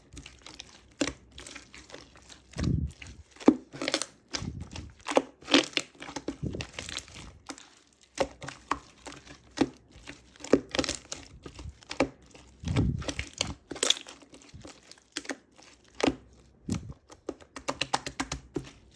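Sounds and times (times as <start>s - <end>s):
slime squishing: 0.0s - 18.9s.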